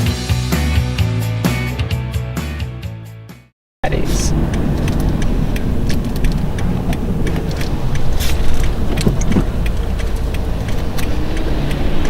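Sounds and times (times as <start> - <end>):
car engine and road noise: 3.8 - 12.0.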